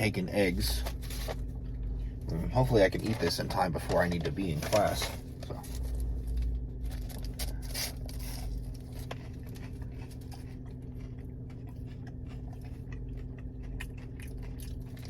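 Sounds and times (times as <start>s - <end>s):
crunching and chewing food: 0.0s - 15.0s
steady low hum: 0.0s - 15.0s.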